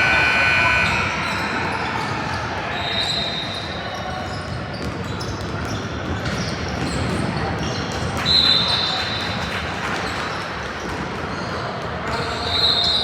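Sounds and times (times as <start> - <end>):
high shoe squeal: 0.0 - 5.8.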